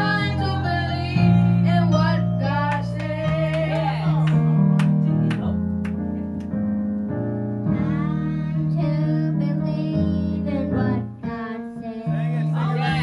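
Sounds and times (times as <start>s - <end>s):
choir singing gospel: 0.0s - 4.3s, 11.8s - 13.0s
low bass notes: 0.0s - 11.4s, 12.1s - 13.0s
piano accompaniment: 0.0s - 13.0s.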